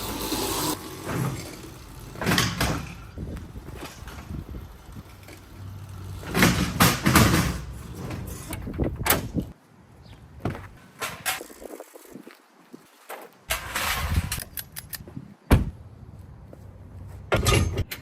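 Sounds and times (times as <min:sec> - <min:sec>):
mini bikes clunking and rattling: 0:00.0 - 0:09.6, 0:10.4 - 0:11.9, 0:17.3 - 0:18.0.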